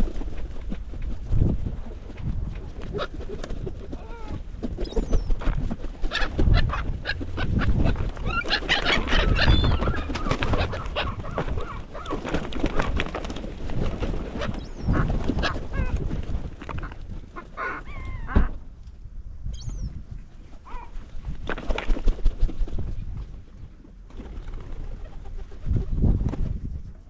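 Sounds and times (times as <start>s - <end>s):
seagulls calling and squabbling: 6.0s - 13.0s, 14.3s - 16.0s, 16.8s - 18.6s.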